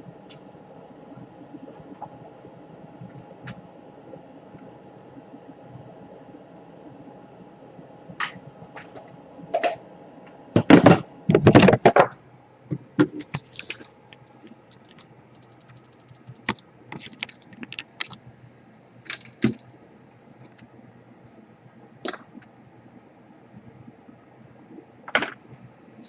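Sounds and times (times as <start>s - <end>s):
laptop parts clicking and clattering: 11.3s - 12.1s, 13.0s - 18.2s, 19.1s - 19.7s.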